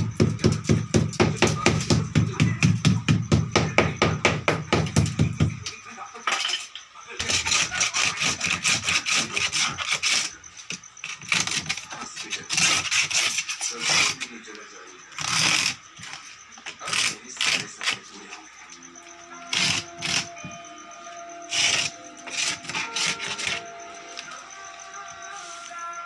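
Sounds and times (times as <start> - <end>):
hand tool scraping: 7.2 - 24.5.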